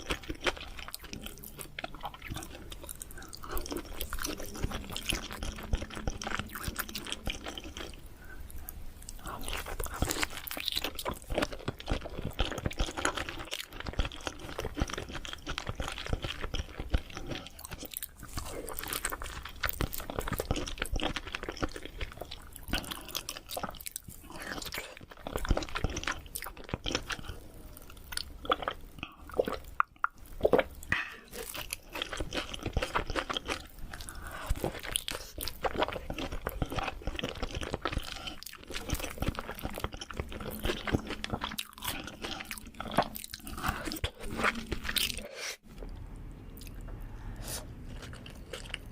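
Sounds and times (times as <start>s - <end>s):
person chewing with mouth clicks: 0.0s - 48.9s.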